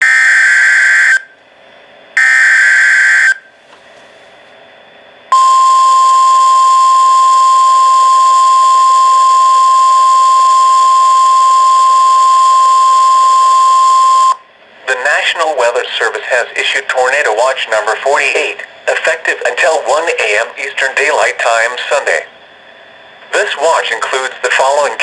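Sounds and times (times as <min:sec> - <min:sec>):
steady alarm tone: 0:00.0 - 0:01.4, 0:02.2 - 0:03.6, 0:05.3 - 0:17.1.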